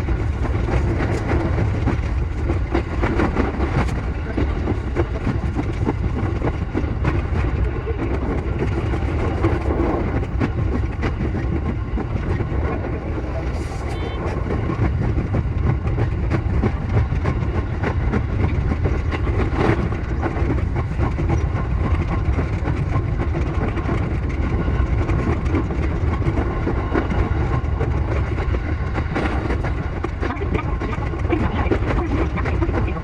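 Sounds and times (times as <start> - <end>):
train rumbling on rails: 0.0 - 33.0
wheels clickety-clack over track: 0.0 - 33.0.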